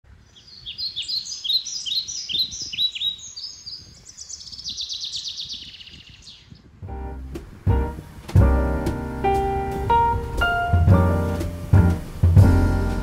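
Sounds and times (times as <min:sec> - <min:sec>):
songbirds chirping and trilling: 0:00.1 - 0:06.8.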